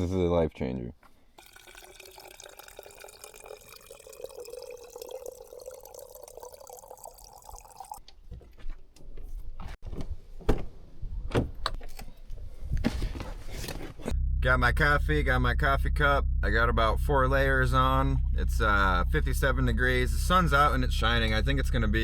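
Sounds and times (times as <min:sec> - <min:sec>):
liquid pouring into container: 0:01.4 - 0:08.0
low rumble: 0:14.0 - 0:22.0.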